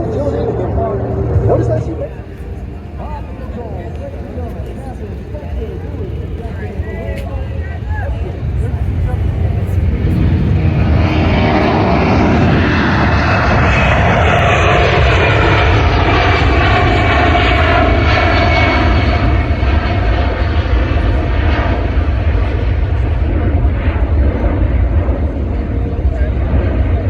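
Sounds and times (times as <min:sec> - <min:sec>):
airplane engine roar overhead: 0:00.0 - 0:27.0.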